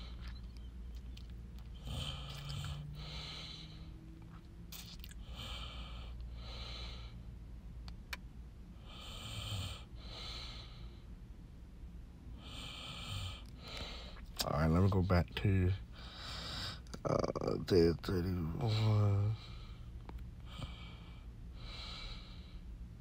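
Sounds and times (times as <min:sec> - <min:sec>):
person breathing in and out: 0:01.8 - 0:04.0, 0:16.0 - 0:16.9.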